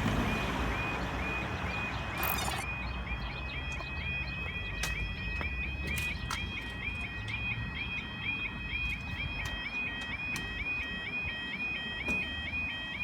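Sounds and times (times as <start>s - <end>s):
electronic yelping alarm tone: 0.2s - 13.0s
steady high tone: 2.2s - 2.8s.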